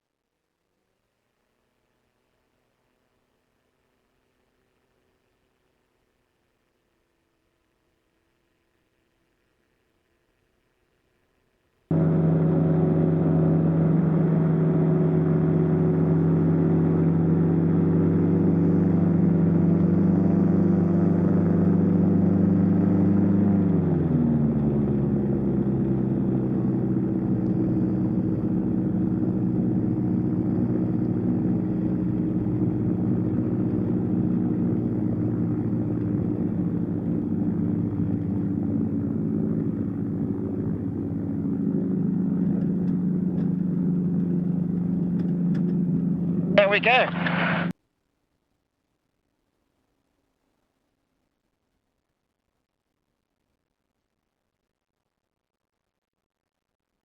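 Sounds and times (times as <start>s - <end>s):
light aircraft engine and propeller: 11.9s - 47.7s.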